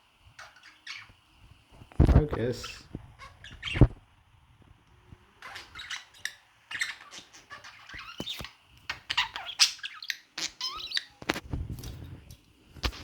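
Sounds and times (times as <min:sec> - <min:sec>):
budgies chirping and chattering: 0:00.4 - 0:01.2, 0:02.1 - 0:04.0, 0:05.4 - 0:11.4.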